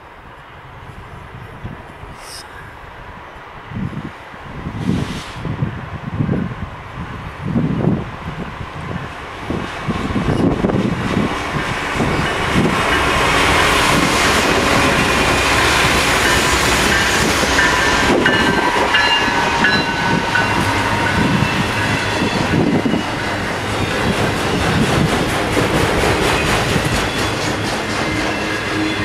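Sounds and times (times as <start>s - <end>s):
train wheels clattering: 10.2s - 29.0s.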